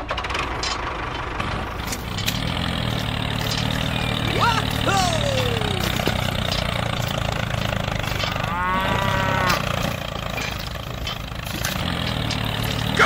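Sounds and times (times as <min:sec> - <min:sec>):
low engine drone: 0:01.0 - 0:13.0
cow mooing: 0:08.0 - 0:10.0.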